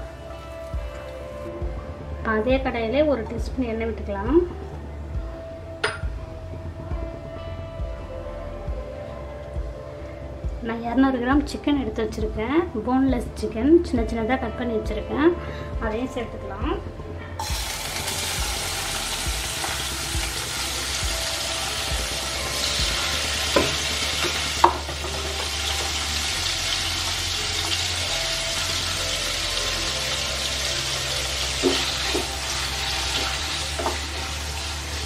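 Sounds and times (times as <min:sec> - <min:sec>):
chicken sizzling in hot oil: 0:17.4 - 0:35.0.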